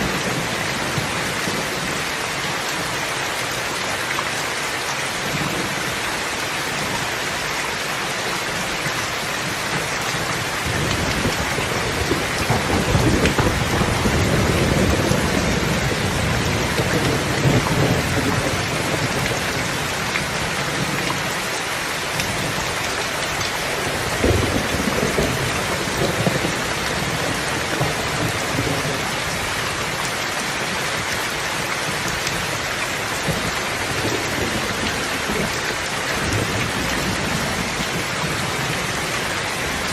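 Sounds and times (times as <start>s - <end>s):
rain falling: 0.0s - 39.9s
rolling thunder: 10.6s - 21.0s, 23.7s - 29.5s.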